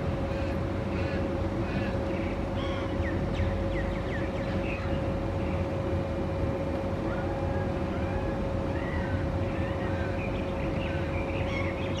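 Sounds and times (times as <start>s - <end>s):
low mechanical hum: 0.0s - 12.0s
birds chirping: 1.1s - 5.7s, 8.8s - 12.0s.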